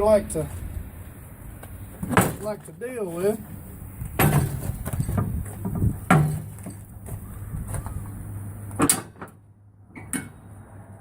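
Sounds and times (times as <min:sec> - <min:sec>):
tire machine knocks and clatters: 0:01.9 - 0:08.0.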